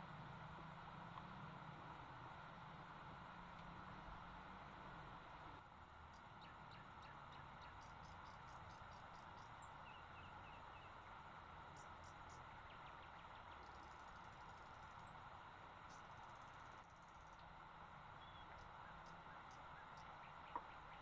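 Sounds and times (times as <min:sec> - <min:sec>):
faint outdoor ambience hiss: 0:00.0 - 0:21.0
faint ticks: 0:03.5 - 0:03.8, 0:06.1 - 0:09.6, 0:15.8 - 0:17.6, 0:18.4 - 0:20.8.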